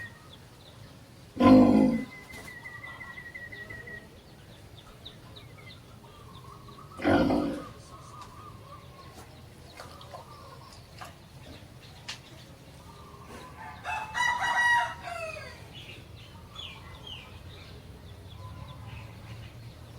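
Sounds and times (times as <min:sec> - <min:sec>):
small birds trilling: 0:00.0 - 0:19.9
loud farm animal call: 0:01.4 - 0:04.3, 0:05.7 - 0:10.8, 0:12.8 - 0:17.4.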